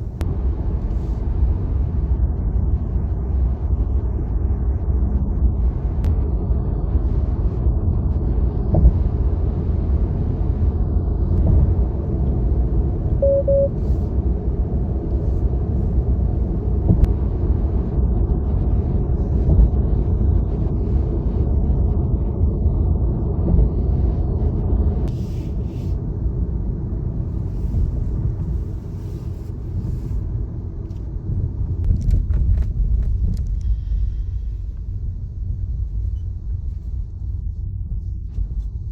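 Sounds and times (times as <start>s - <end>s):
short faint beep: 13.2s - 13.8s.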